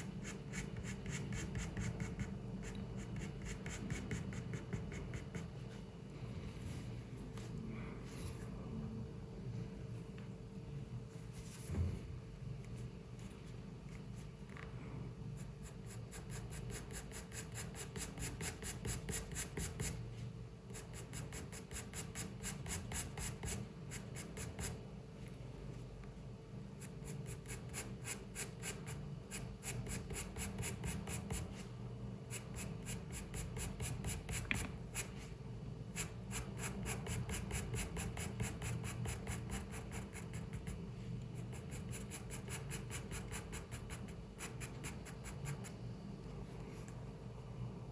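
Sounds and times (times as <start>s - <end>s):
pencil scratching on paper: 0.0s - 5.6s, 15.4s - 20.0s, 20.7s - 24.8s, 26.8s - 31.7s, 32.3s - 35.3s, 35.9s - 40.8s, 41.4s - 45.8s
low room hum: 0.0s - 47.9s.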